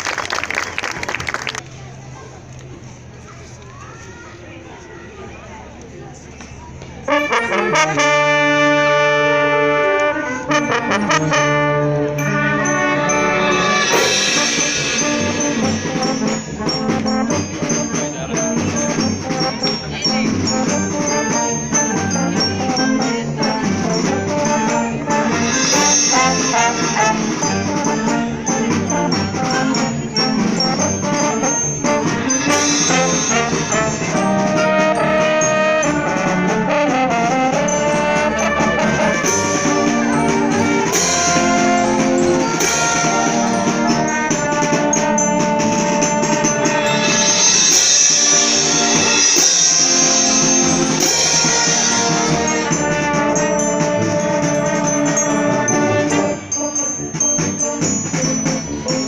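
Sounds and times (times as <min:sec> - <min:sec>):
wind band playing: 0:07.0 - 0:59.0
cymbal crashes: 0:12.6 - 0:17.9, 0:25.3 - 0:28.2, 0:31.5 - 0:35.0, 0:46.5 - 0:52.7.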